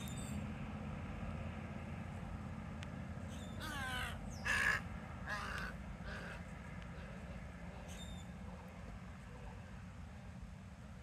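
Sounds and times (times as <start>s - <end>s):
bird calling: 3.3s - 6.4s.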